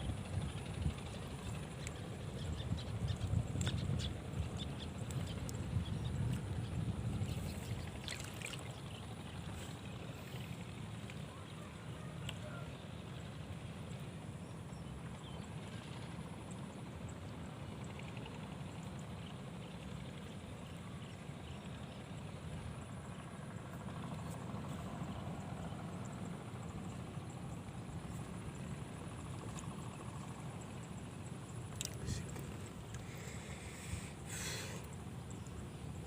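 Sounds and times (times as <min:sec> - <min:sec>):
wind rumbling on microphone: 0:00.0 - 0:10.8.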